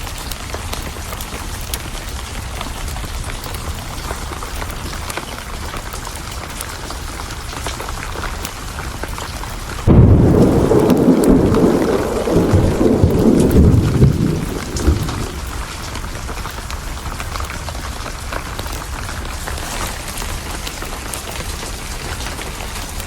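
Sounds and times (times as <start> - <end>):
sharp ticks of raindrops: 0.0 - 23.0
steady rain: 0.0 - 23.0
loud thunderclap rumbling: 9.8 - 16.3.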